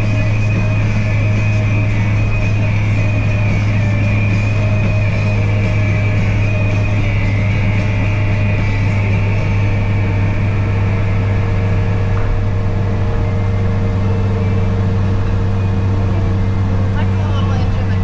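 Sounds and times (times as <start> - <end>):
engine and road drone in cab: 0.0 - 18.0.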